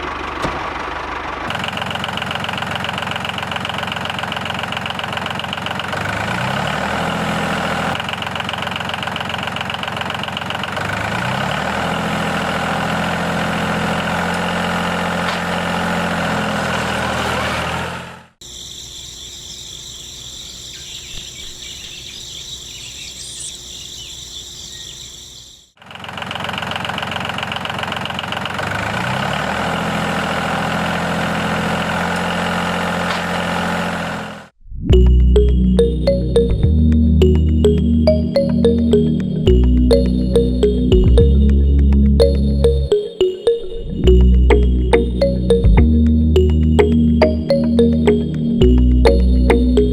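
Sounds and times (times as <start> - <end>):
small engine revving: 1.4 - 18.4, 25.8 - 34.6.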